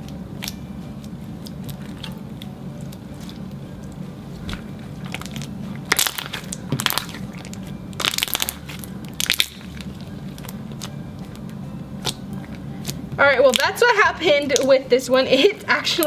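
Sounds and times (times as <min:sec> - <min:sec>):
low steady hum: 0:00.0 - 0:16.0
slime bubbles crackling: 0:01.4 - 0:13.9.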